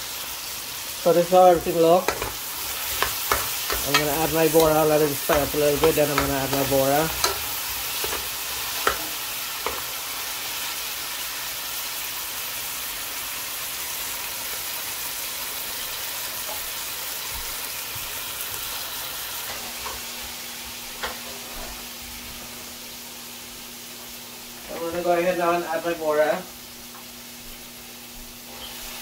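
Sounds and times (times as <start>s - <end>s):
vegetables sizzling in hot oil: 0.0s - 29.0s
metal spoon clinking on pot: 2.1s - 4.7s.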